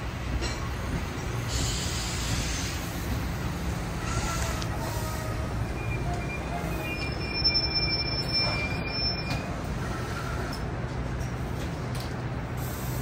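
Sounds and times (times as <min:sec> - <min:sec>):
train rumbling: 0:00.0 - 0:13.0
high-pitched brake squeal: 0:04.0 - 0:10.7.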